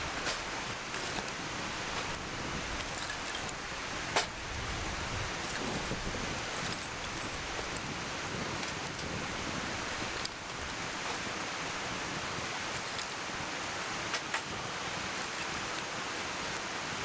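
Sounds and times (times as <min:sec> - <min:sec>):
wood fire crackling: 0:00.0 - 0:11.8
stream water flowing: 0:00.0 - 0:17.0.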